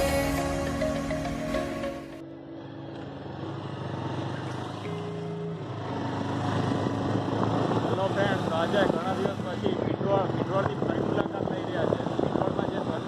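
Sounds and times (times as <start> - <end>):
background music: 0.0 - 3.8
road and wind noise: 0.0 - 13.0
vehicle engine humming: 0.0 - 13.0.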